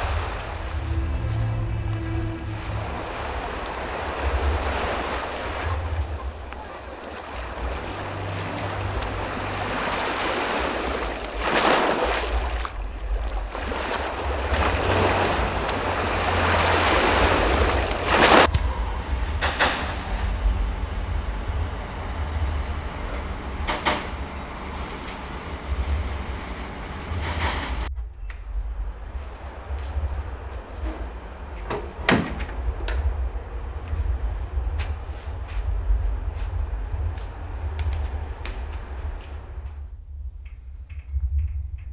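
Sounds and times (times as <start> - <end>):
loud rushing noise: 0.0 - 12.4.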